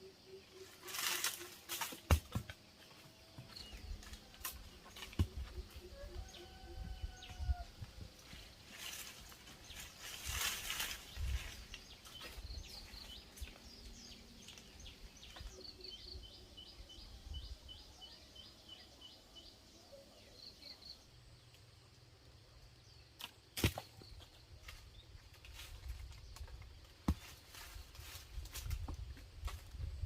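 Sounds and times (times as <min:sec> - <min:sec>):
rustling: 0:08.6 - 0:12.4
bird chirping: 0:09.7 - 0:21.4.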